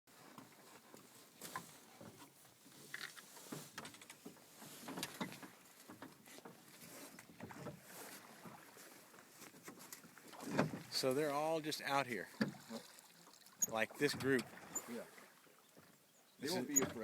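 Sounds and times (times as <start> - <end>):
river water lapping against boat hull: 0.1 - 17.0.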